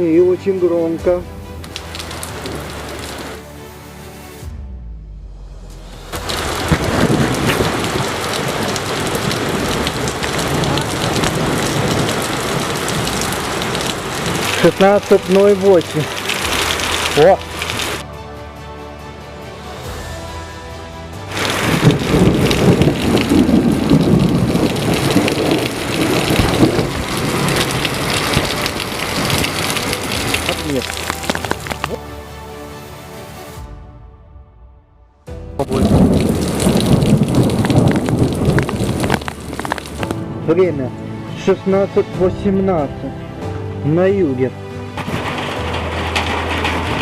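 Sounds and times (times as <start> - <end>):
heavy rain falling: 0.9 - 3.4, 5.8 - 18.0, 21.1 - 32.3, 35.6 - 41.3, 44.6 - 47.0
thunder rumbling: 4.6 - 18.0, 21.3 - 32.0, 35.5 - 40.5
drops ticking on a surface: 37.5 - 40.2.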